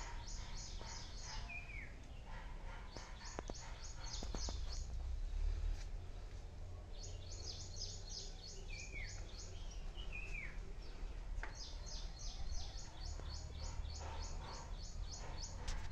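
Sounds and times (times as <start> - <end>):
high repeated bird chirps: 0.0 - 4.8.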